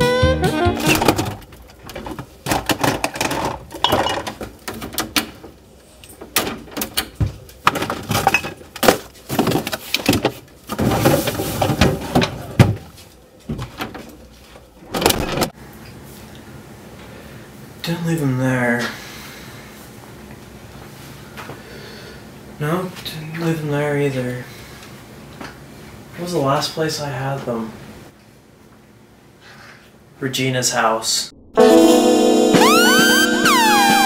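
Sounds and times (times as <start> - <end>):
objects clattering: 0.9 - 5.5, 6.2 - 12.9.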